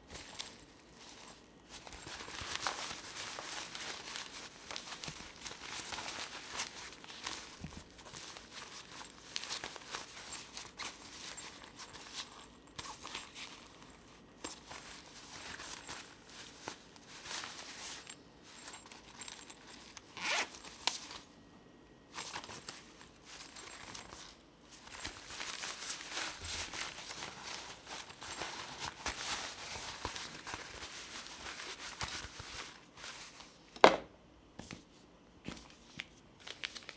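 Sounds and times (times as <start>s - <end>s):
packaging rustling: 0.0s - 21.2s, 22.1s - 33.5s, 35.6s - 36.9s.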